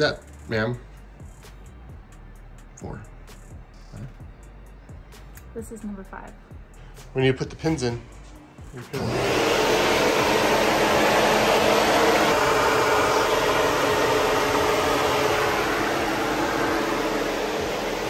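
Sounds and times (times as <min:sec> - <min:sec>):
car engine running loudly: 0:08.9 - 0:18.0.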